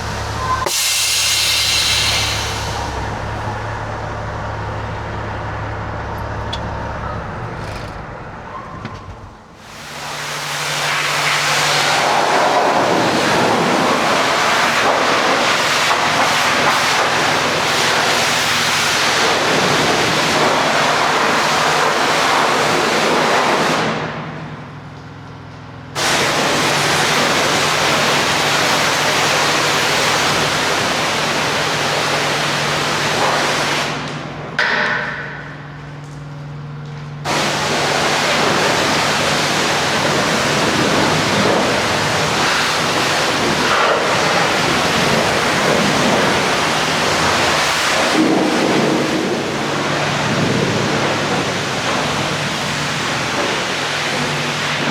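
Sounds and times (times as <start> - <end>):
pressure washer spraying water: 0.0 - 3.3, 9.6 - 23.9, 26.0 - 34.1, 37.3 - 54.9
low engine hum: 0.0 - 15.2.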